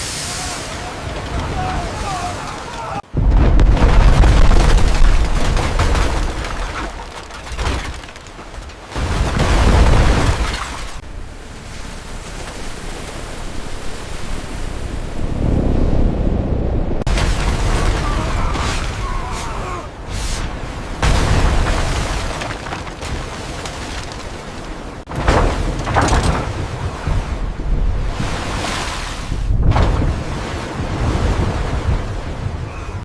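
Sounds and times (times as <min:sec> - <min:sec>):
deep booms and rumbling: 0:03.0 - 0:06.7.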